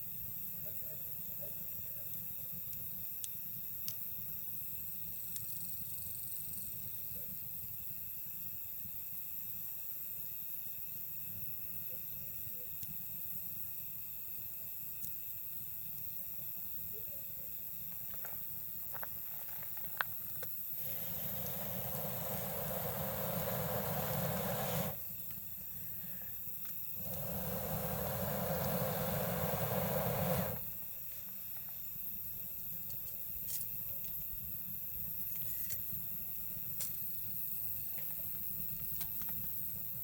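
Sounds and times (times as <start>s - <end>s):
insects calling: 0.0s - 40.0s
campfire crackling: 2.0s - 7.1s, 17.7s - 34.2s
hissing rush: 20.8s - 26.1s, 26.9s - 30.8s.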